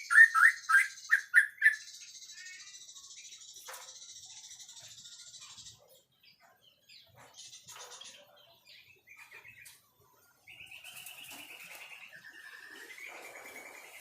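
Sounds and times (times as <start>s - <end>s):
bird whistles and chirps: 0.0s - 5.8s, 10.5s - 14.0s
buzzy rattling bird trill: 0.0s - 14.0s.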